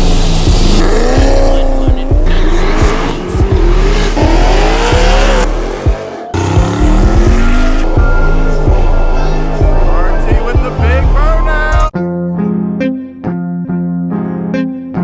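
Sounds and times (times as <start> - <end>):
car engines revving hard: 0.0 - 11.8
music with heavy bass beat: 0.0 - 12.0.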